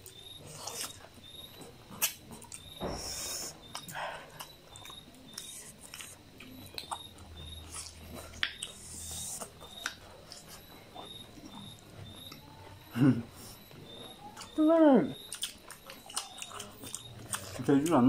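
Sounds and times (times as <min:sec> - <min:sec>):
lip smacks: 0:00.0 - 0:07.1, 0:07.7 - 0:11.6
chewing with wet clicks: 0:00.0 - 0:18.0.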